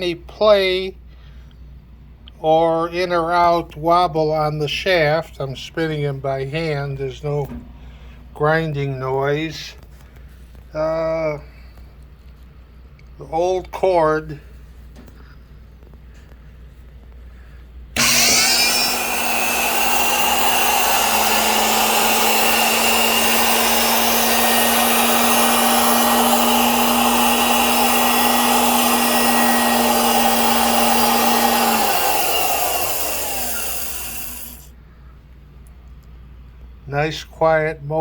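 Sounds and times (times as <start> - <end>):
grinder motor whining: 18.0 - 34.7.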